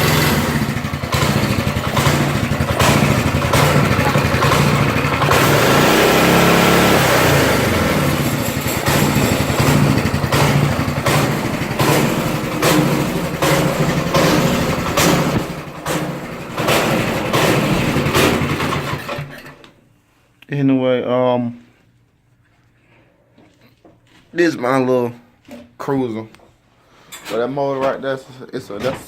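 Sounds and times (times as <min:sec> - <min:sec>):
small engine revving: 0:00.0 - 0:19.4.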